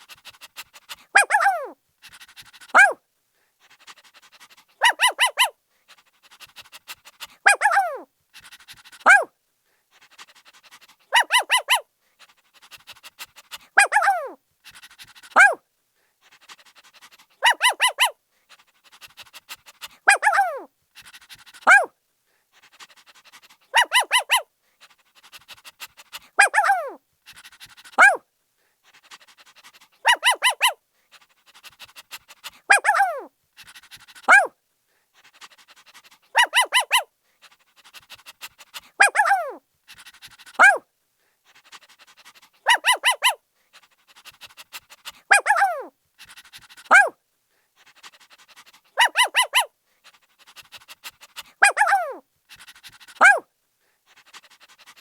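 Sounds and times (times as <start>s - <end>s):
puppy panting: 0.0s - 3.0s, 3.6s - 9.3s, 9.9s - 55.0s
puppy barking and yelping: 0.2s - 3.0s, 3.9s - 5.6s, 6.3s - 9.3s, 10.2s - 11.9s, 12.6s - 15.6s, 16.8s - 21.9s, 22.9s - 24.5s, 25.2s - 28.2s, 29.0s - 30.8s, 31.6s - 34.6s, 35.4s - 37.1s, 37.8s - 40.8s, 42.1s - 43.4s, 44.2s - 47.2s, 48.6s - 49.7s, 50.5s - 53.5s.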